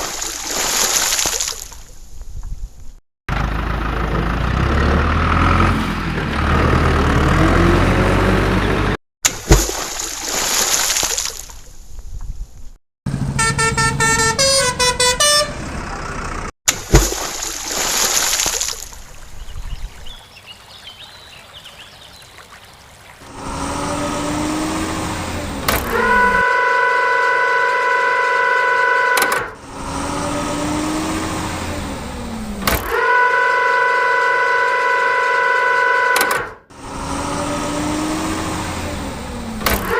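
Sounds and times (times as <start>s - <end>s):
long steady horn blast: 13.1s - 15.9s, 23.3s - 39.9s
stepped horn toots: 13.1s - 15.9s, 25.2s - 30.4s, 32.6s - 36.7s, 39.6s - 39.9s.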